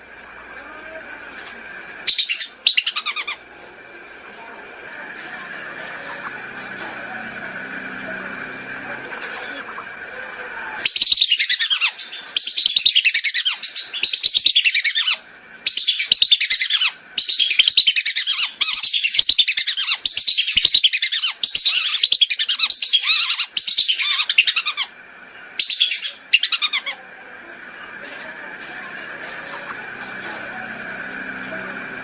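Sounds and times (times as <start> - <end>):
ducks whistling: 10.8 - 25.0, 25.6 - 27.0.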